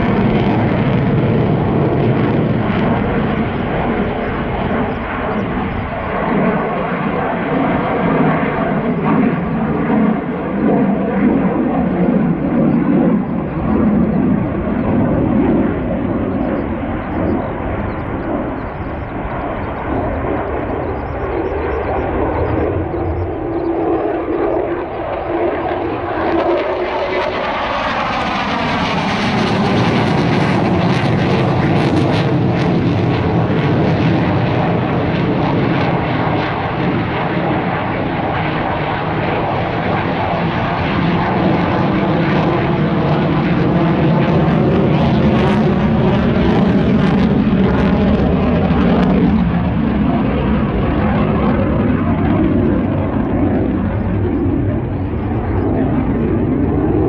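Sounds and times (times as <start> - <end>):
military aircraft flying past: 0.0 - 57.0.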